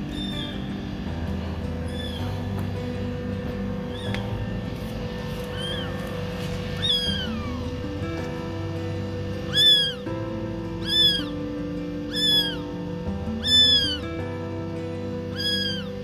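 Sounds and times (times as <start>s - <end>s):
kittens meowing: 0.0s - 0.9s, 1.7s - 2.6s, 3.8s - 8.2s, 9.2s - 14.2s, 15.2s - 16.0s
background music: 0.0s - 16.0s.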